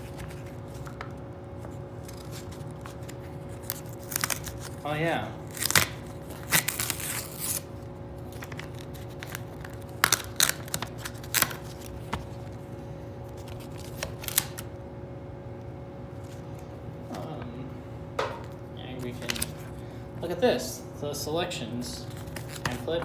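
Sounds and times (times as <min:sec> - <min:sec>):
paper rustling: 0:00.0 - 0:04.8, 0:08.3 - 0:14.6, 0:19.0 - 0:19.7, 0:22.0 - 0:23.0.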